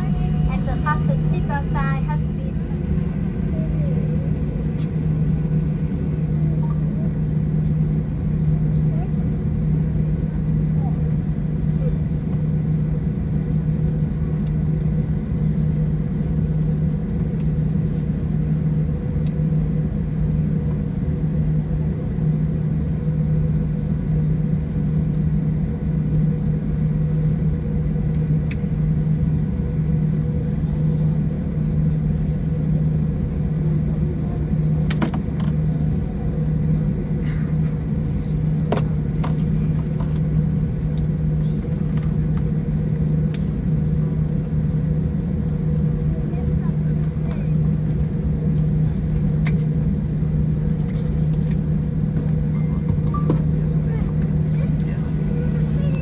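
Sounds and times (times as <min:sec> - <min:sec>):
aircraft cabin rumble and hum: 0:00.0 - 0:56.0.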